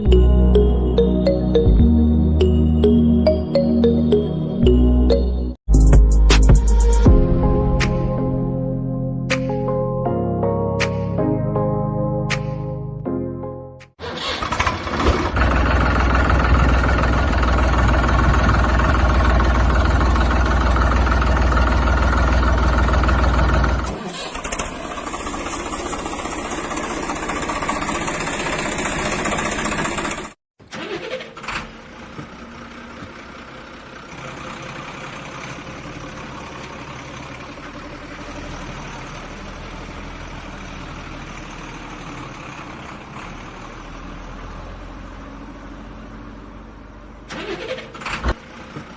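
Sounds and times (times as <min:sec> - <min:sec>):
vehicle engine running: 0:14.1 - 0:30.4, 0:31.4 - 0:48.9.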